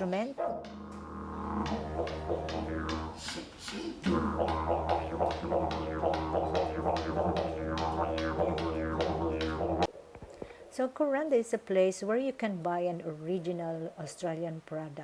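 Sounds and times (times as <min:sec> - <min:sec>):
didgeridoo drone: 0:00.6 - 0:09.9.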